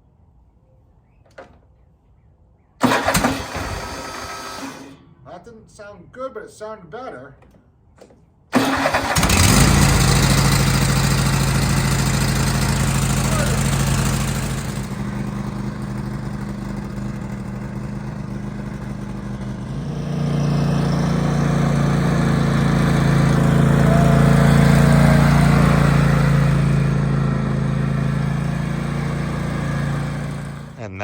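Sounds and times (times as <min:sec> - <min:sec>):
tractor engine running: 0:02.8 - 0:05.0, 0:08.6 - 0:31.0.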